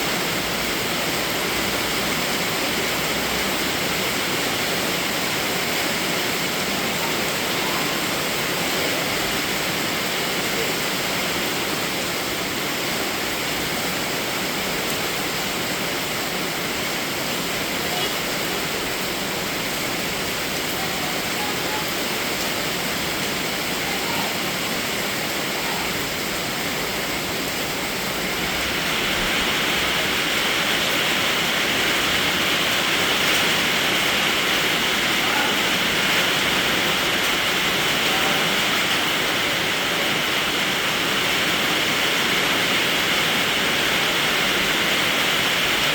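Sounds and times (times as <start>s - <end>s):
heavy rain: 0.0s - 45.9s.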